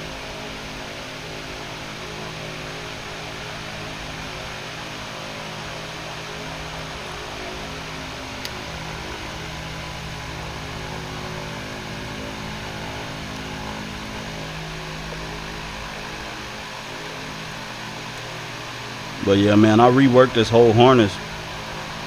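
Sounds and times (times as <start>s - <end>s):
background hum and hiss: 0.0s - 22.0s
low steady tones: 0.0s - 22.0s.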